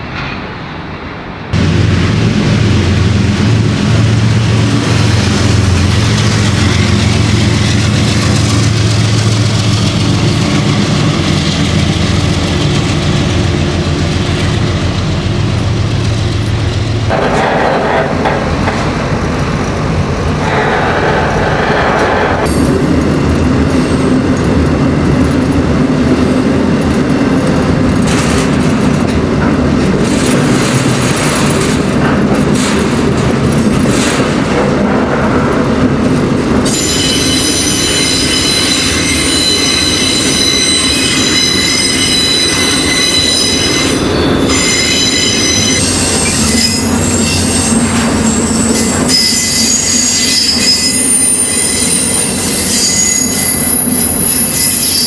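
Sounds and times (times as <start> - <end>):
train wheels rumbling on rails: 0.0 - 55.0
steel wheels squealing on rail: 16.4 - 19.0, 20.4 - 22.9, 36.6 - 55.0.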